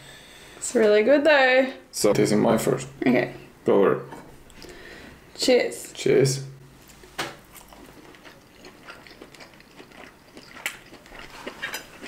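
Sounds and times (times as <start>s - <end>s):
people chewing and crunching: 7.0s - 12.0s.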